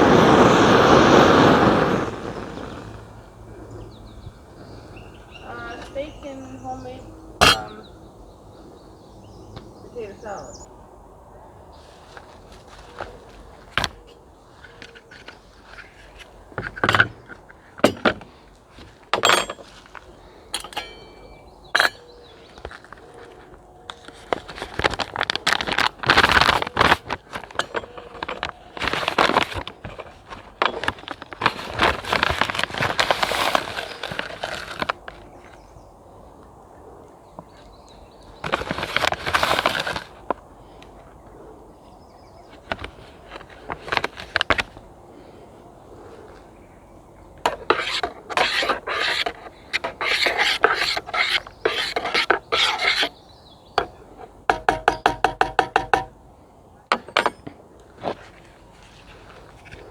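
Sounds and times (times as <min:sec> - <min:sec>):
rustling and scraping: 0:11.8 - 0:35.7, 0:38.3 - 0:40.8, 0:42.5 - 0:46.5, 0:47.4 - 0:56.1, 0:56.9 - 0:59.9.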